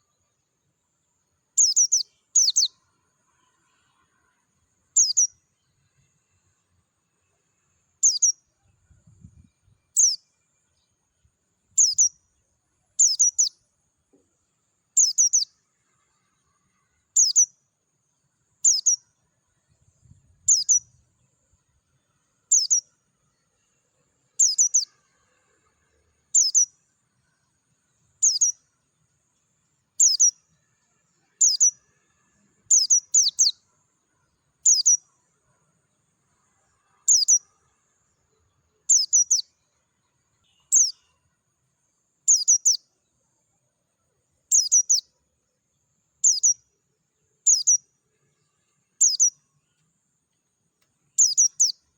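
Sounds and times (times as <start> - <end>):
bird giving high chirps: 1.6 - 2.8, 8.0 - 8.4, 42.3 - 42.8, 44.5 - 45.0, 46.2 - 46.6, 47.5 - 47.8, 49.0 - 49.3, 51.2 - 51.8.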